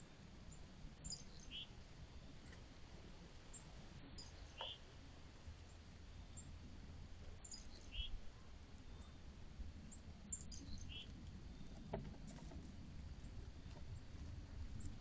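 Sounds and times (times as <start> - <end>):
low steady background rumble: 0.0 - 15.0.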